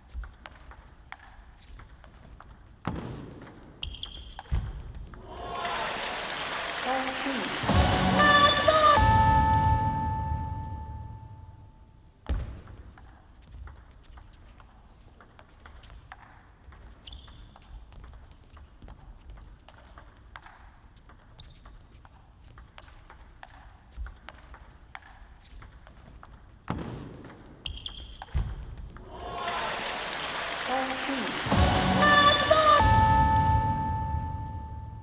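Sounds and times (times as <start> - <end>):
ping pong ball clicking: 0.0 - 5.2, 12.2 - 29.1
shoe squeaks on court floor: 2.9 - 5.0, 16.3 - 18.6, 20.5 - 22.6, 23.5 - 28.9
crowd noise: 5.2 - 11.2, 29.0 - 34.9.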